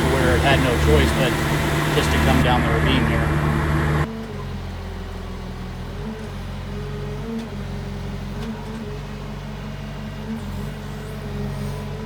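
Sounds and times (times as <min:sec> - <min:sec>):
excavator diesel engine running: 0:00.0 - 0:04.8.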